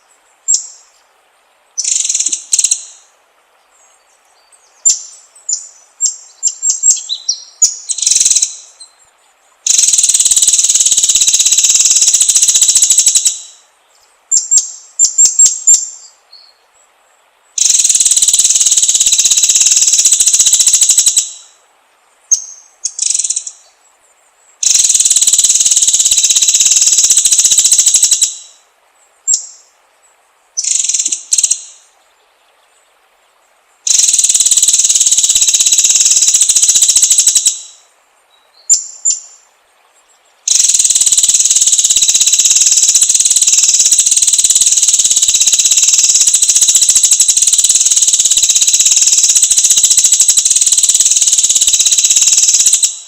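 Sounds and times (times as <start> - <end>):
bird buzzing trills: 3.8 - 16.6, 17.6 - 21.6, 24.6 - 28.6, 30.6 - 32.0, 33.9 - 37.8, 40.1 - 53.0
bird whistling and chirping: 4.8 - 8.9, 14.3 - 16.5.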